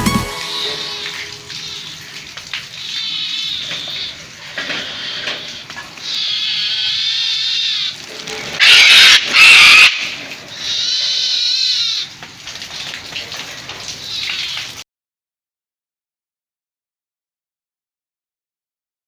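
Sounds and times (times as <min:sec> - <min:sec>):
animal high-pitched call: 0:08.6 - 0:10.1
animal harsh screeches: 0:08.6 - 0:12.0.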